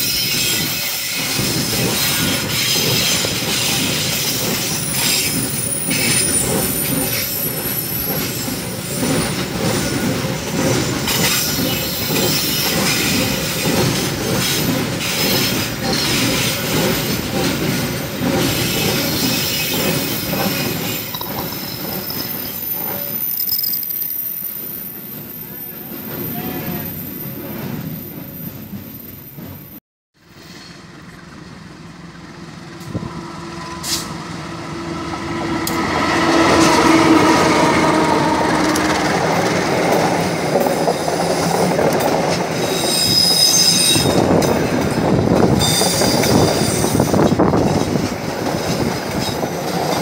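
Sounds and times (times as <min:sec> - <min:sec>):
train wheels rumbling on rail: 0:00.0 - 0:50.0
high wheel squeals: 0:18.4 - 0:29.6, 0:42.6 - 0:44.4, 0:45.5 - 0:47.2.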